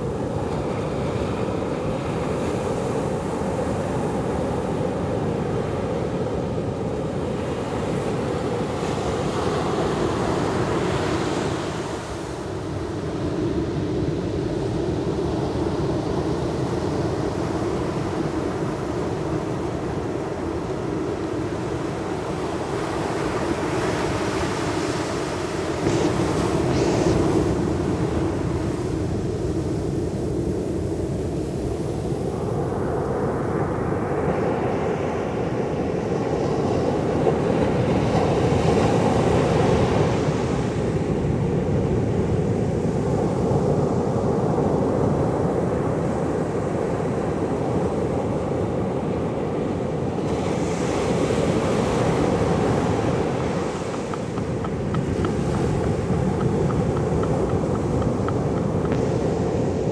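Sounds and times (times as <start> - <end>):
sea surf washing ashore: 21.7 - 59.9.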